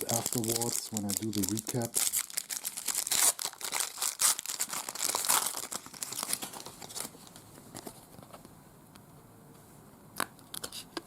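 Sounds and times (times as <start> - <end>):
wrapper being torn and crinkled: 0.0 - 7.3.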